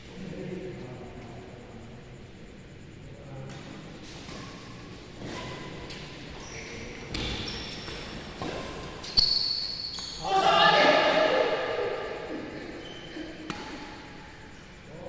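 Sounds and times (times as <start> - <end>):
shoes squeaking on court floor: 3.6 - 11.1, 12.6 - 14.8
racket hitting shuttlecock: 13.4 - 14.0.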